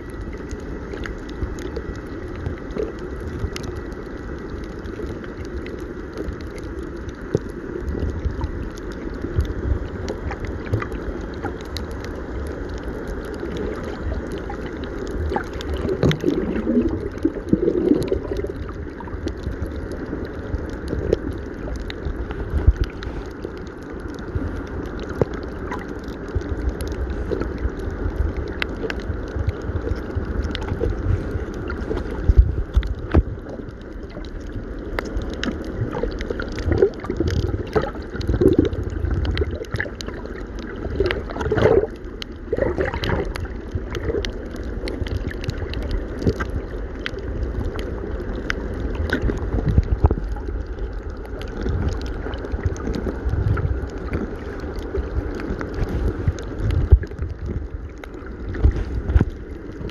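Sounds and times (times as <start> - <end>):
steady low rumble: 0.0 - 59.9
wind buffeting microphone: 30.8 - 33.3.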